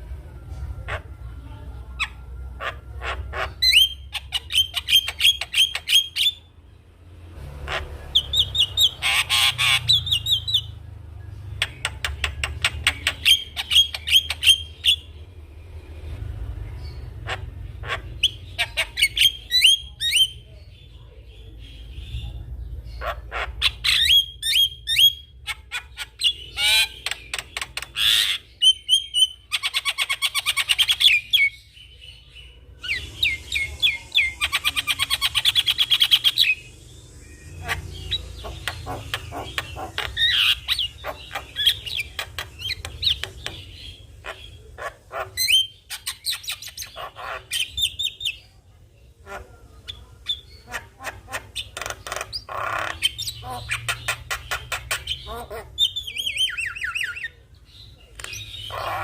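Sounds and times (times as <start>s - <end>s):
myna chattering and whistling: 0.6s - 6.5s, 11.4s - 15.2s, 32.6s - 59.0s.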